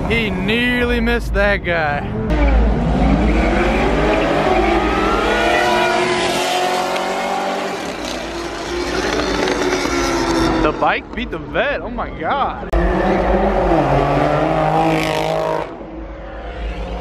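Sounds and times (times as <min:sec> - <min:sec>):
car engine accelerating: 0:02.0 - 0:11.7, 0:12.6 - 0:17.0
motorcycle engine accelerating: 0:02.2 - 0:11.1.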